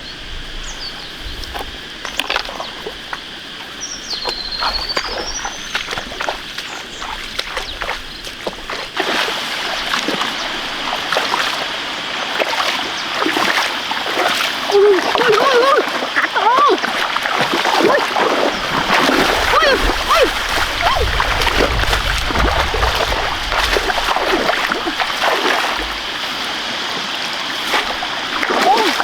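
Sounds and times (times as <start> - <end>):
water splashing and sloshing: 0.0 - 29.0.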